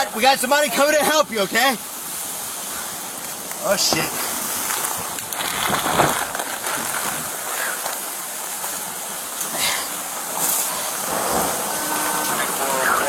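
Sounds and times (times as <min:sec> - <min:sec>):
steady rain hiss: 0:00.0 - 0:13.0
rustles on microphone: 0:04.0 - 0:08.2.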